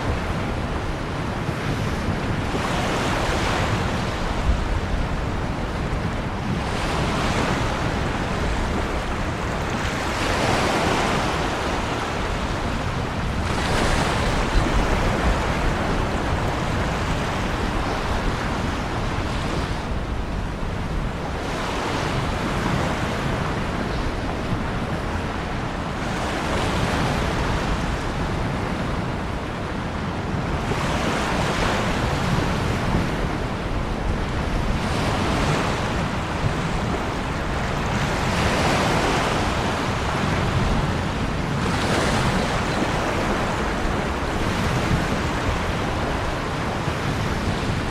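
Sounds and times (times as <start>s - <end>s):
waves breaking: 0.0s - 47.9s.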